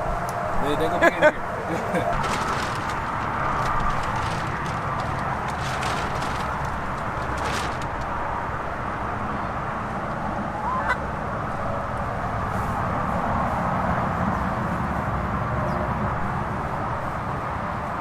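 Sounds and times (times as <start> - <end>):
outdoor rushing noise: 0.0 - 18.0
chicken squawking: 10.4 - 11.0.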